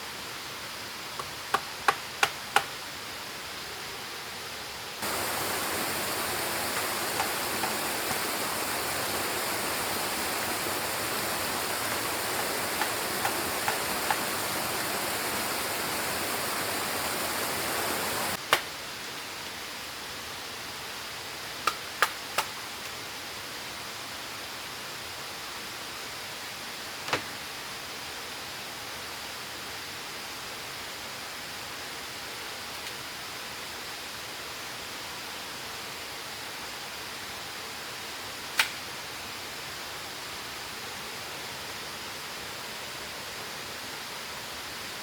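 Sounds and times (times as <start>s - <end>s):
waterfall rushing: 5.0s - 18.4s.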